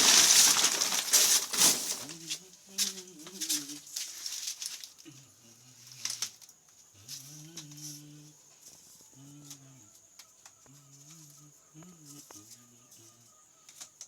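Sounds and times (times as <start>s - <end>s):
wings flapping and rustling: 0.0s - 5.0s.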